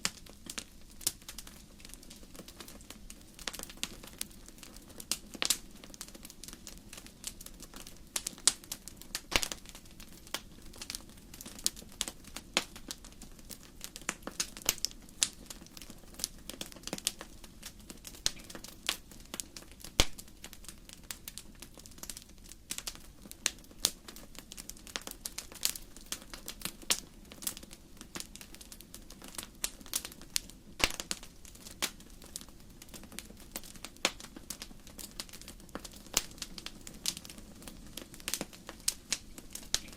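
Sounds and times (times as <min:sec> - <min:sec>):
logs snapping and popping: 0:09.2 - 0:09.6, 0:30.8 - 0:31.2.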